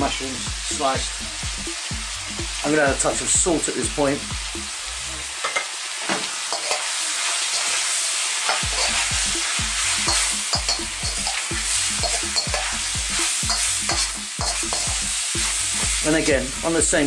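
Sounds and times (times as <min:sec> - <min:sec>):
food sizzling in a wok: 0:00.0 - 0:17.0
metal spoon scraping a pan: 0:05.4 - 0:16.0.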